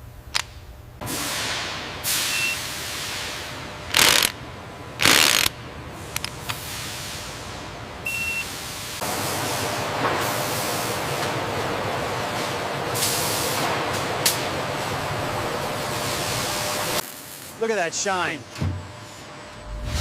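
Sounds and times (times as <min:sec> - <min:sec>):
compressed air hissing bursts: 0:01.0 - 0:04.3, 0:06.5 - 0:07.4.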